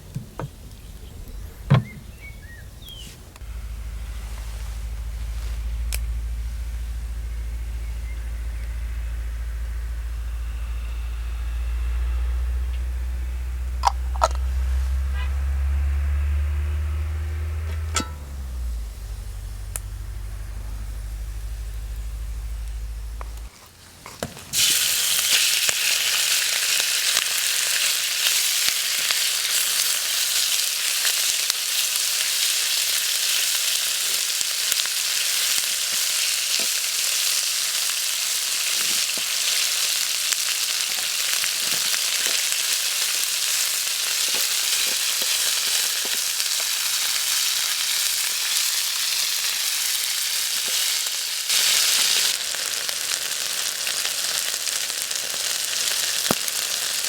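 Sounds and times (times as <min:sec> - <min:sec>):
food sizzling in a pan: 0:24.1 - 0:57.0.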